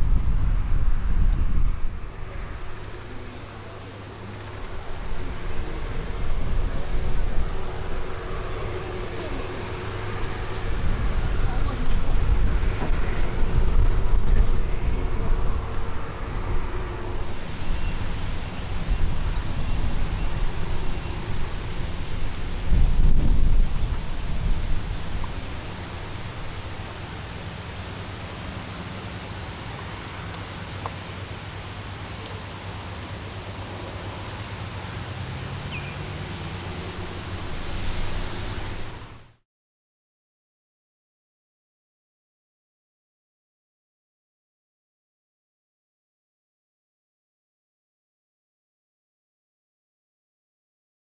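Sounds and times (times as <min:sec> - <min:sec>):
wind buffeting microphone: 0:00.0 - 0:39.3
outdoor background hiss: 0:00.0 - 0:39.4.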